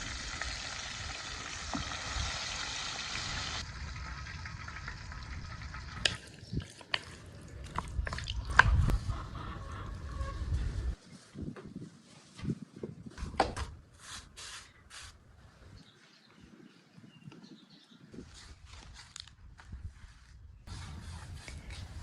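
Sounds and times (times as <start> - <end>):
chicken frying in hot oil: 0.0 - 6.6.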